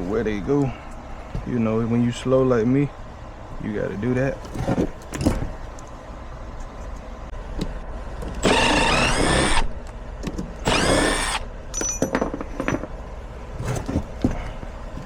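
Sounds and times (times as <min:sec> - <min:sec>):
cordless drill whining: 0:08.4 - 0:09.7, 0:10.6 - 0:11.4
metal parts clicking and knocking: 0:11.7 - 0:13.0.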